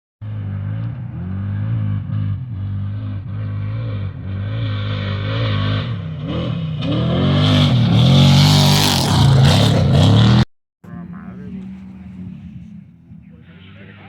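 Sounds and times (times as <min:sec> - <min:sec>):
race vehicle engine revving hard: 0:00.3 - 0:14.0.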